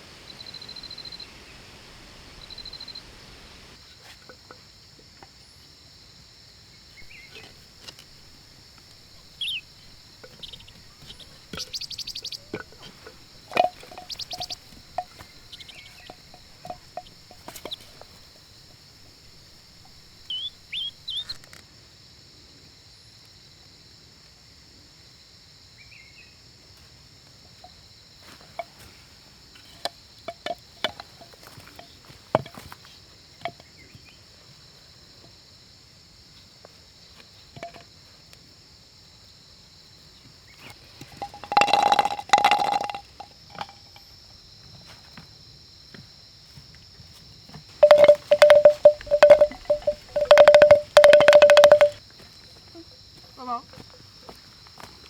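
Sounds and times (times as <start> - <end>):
steady high hiss: 0.0 - 3.9
birds chirping: 7.0 - 21.4, 47.8 - 52.0.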